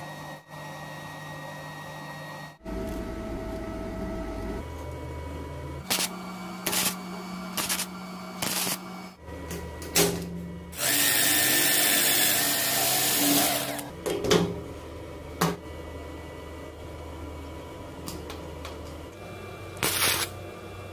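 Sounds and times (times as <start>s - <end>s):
steady low hum: 0.0s - 10.8s
power tool cutting metal: 5.9s - 8.9s, 10.8s - 13.9s.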